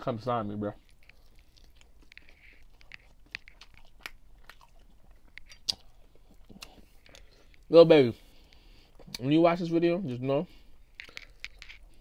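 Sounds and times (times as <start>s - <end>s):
person chewing with wet smacks: 0.7s - 7.7s, 8.3s - 9.4s.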